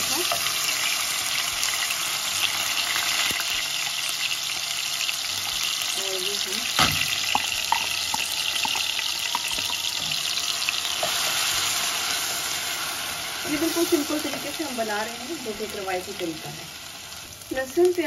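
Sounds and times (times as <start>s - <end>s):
food sizzling in oil: 0.0s - 18.0s
oil popping: 6.6s - 10.4s
stirring in a pot: 6.6s - 12.2s
wooden spoon knocking jar: 7.2s - 10.2s.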